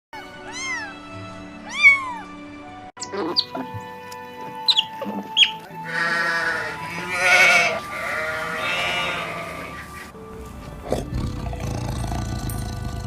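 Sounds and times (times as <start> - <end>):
background music: 0.2 - 13.0
sheep bleating: 5.8 - 10.0.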